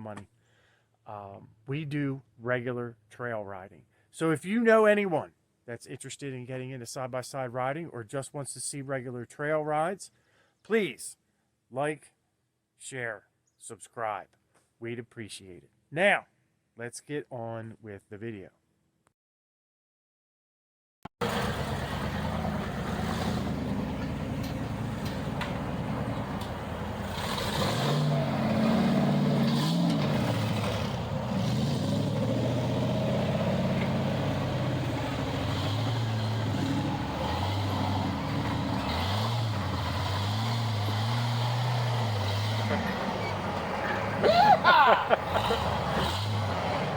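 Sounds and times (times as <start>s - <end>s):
vehicle engine revving: 21.2s - 46.9s.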